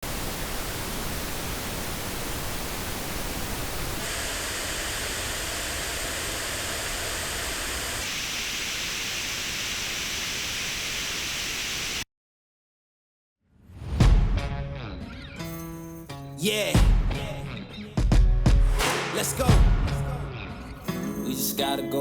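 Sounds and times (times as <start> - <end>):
pink noise hiss: 0.0 - 12.0.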